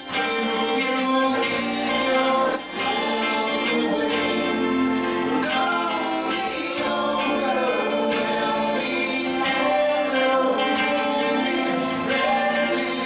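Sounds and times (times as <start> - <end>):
congregation and band singing: 0.0 - 13.0.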